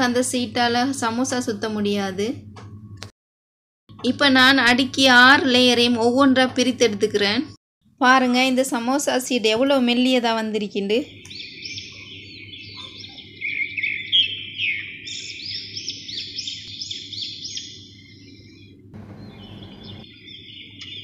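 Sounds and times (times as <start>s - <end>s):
small birds chirping: 10.8s - 21.0s
faint low hum: 17.8s - 20.0s.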